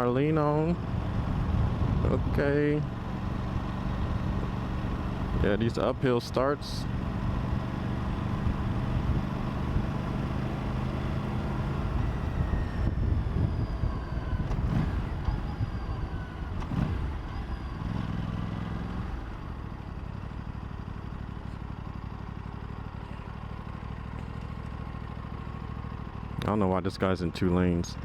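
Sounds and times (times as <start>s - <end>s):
motorcycle engine pulling away: 2.9s - 21.8s.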